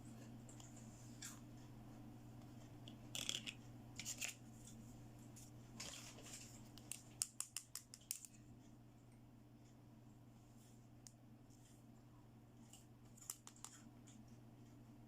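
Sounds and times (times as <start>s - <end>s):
faint steady hum: 0.0s - 15.0s
plastic toy pieces rustling: 3.2s - 4.3s.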